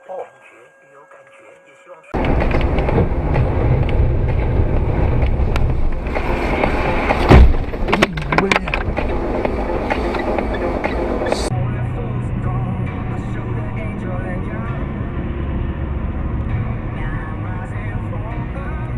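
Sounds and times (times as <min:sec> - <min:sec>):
vehicle road noise: 0:02.1 - 0:18.9
loud heavy bang: 0:02.2 - 0:09.0.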